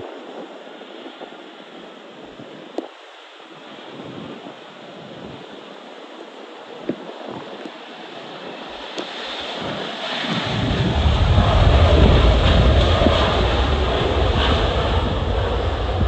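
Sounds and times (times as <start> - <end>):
gusty wind buffeting microphone: 0.0 - 16.0
deep rumble: 9.5 - 16.0.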